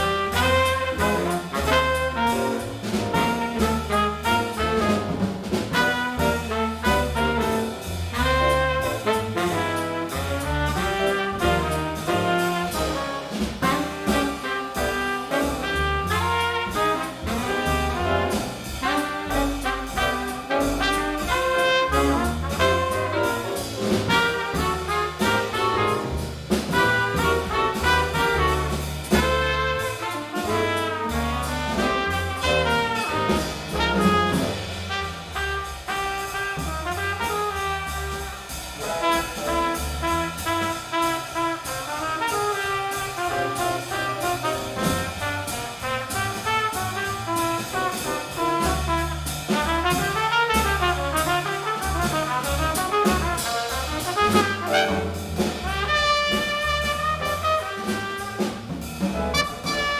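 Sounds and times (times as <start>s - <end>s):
baritone saxophone: 0.0s - 5.1s, 13.7s - 23.4s, 48.5s - 58.6s, 59.3s - 59.9s
drums and cymbals: 0.0s - 59.9s
piano: 0.0s - 59.9s
trumpet: 0.0s - 59.9s
walking bass line: 48.8s - 59.9s.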